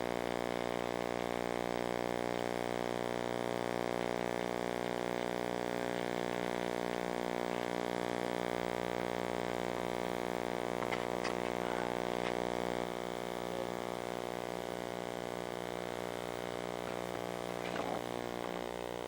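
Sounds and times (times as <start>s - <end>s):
faint crackles: 3.5s - 14.1s, 16.2s - 19.0s.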